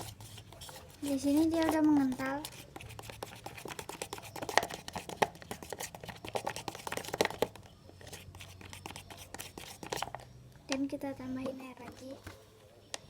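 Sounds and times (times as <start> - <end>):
spoon stirring sticky slime: 0.0 - 10.3.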